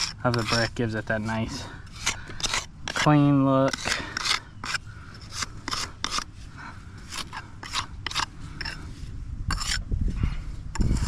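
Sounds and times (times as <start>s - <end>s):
metal jointer scraping mortar: 0.0s - 6.3s, 7.0s - 8.9s, 9.5s - 9.8s.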